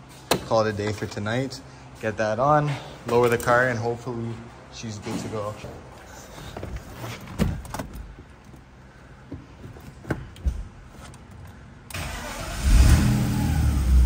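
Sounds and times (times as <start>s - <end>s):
car engine starting and idling: 11.8s - 14.0s.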